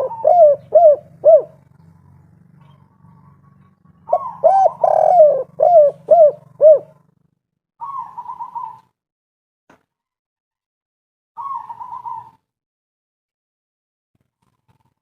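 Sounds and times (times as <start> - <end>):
dove cooing: 0.0 - 7.1, 7.8 - 9.0, 11.4 - 12.4.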